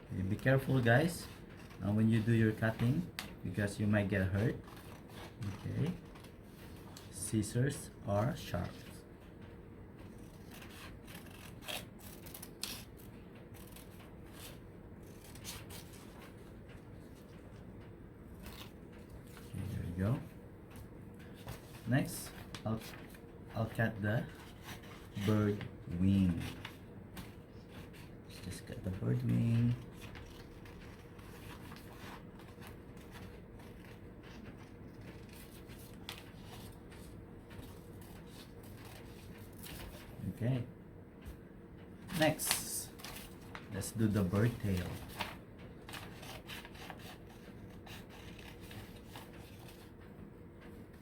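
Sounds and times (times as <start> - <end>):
scissors snipping paper: 10.1 - 16.3, 43.9 - 49.8.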